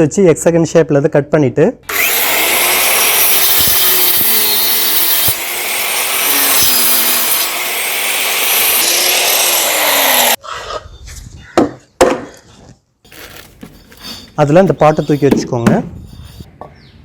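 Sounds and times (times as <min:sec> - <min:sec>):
power saw cutting plywood: 0:01.9 - 0:10.4.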